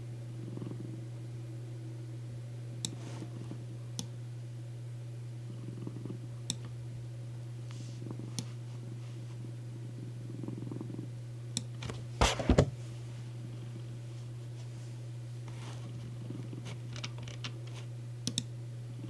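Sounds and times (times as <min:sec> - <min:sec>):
light clicks: 0:18.2 - 0:18.5.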